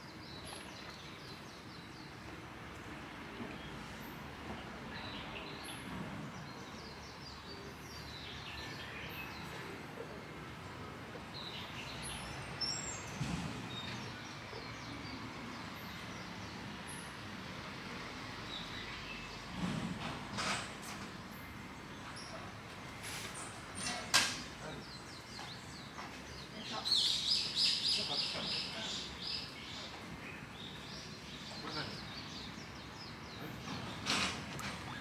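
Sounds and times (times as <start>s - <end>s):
steady background noise: 0.0s - 35.0s
small birds chirping: 24.5s - 34.1s.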